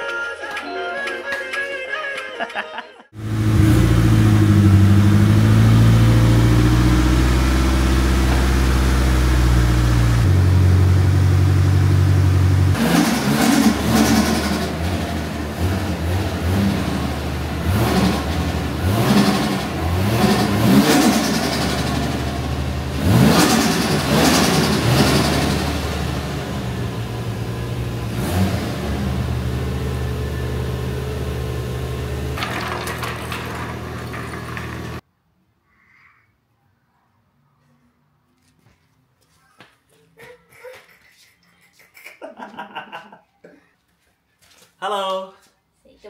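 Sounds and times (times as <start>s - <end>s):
car engine idling and revving: 3.2s - 35.0s.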